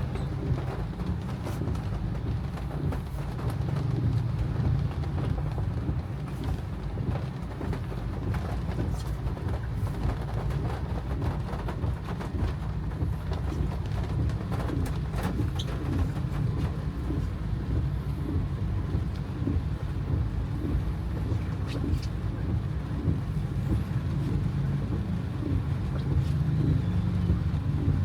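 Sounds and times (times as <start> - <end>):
car rumbling on wet road: 0.0 - 28.0
rain ticking on car: 0.0 - 28.0.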